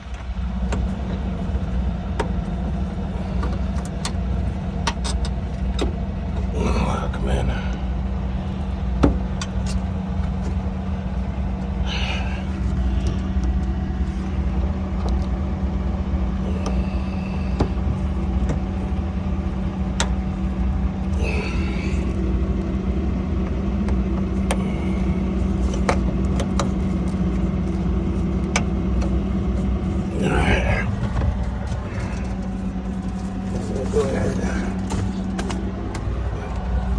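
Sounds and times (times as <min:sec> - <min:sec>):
clicks and knocks of fasteners: 0:00.0 - 0:06.5, 0:25.4 - 0:29.9, 0:34.8 - 0:36.7
engine idling: 0:00.0 - 0:36.9.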